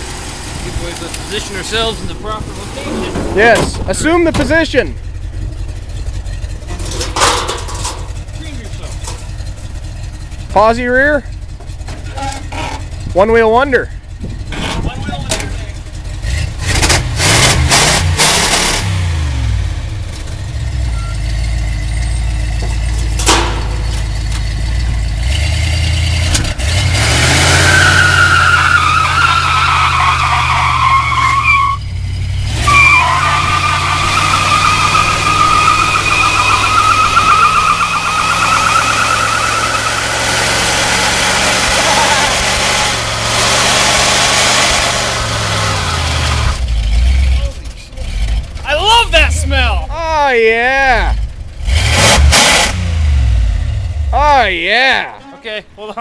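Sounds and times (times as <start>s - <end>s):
car engine revving: 0.0s - 54.6s
tyre squealing: 1.3s - 10.6s, 11.2s - 13.3s, 26.8s - 49.1s.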